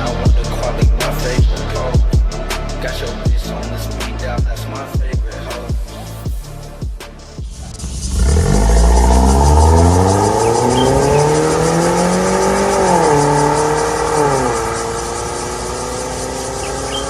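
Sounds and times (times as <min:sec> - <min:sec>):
car engine accelerating: 0:07.5 - 0:17.0.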